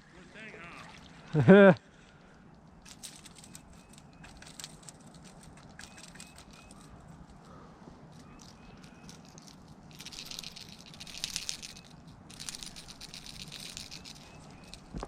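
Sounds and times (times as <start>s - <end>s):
fishing reel clicking: 2.9s - 6.9s, 8.2s - 14.9s.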